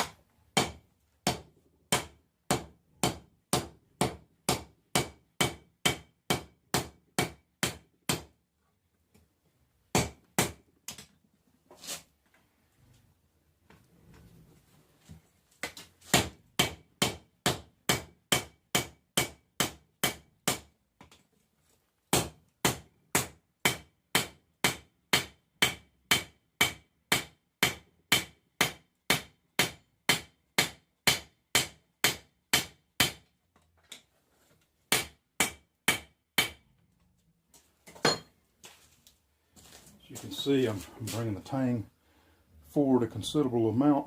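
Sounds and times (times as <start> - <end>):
hammer striking steel on anvil: 38.0 - 38.3.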